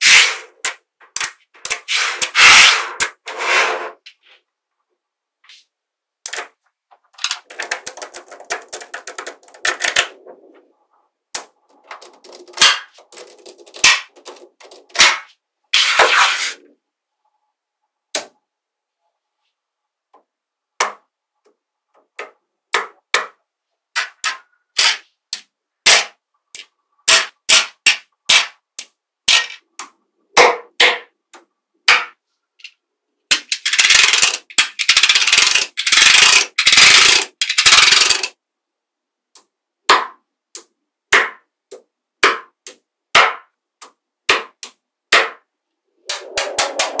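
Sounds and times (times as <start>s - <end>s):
magnetic balls clicking together: 0.6s - 1.9s, 6.2s - 10.2s, 11.3s - 15.0s, 33.3s - 38.4s.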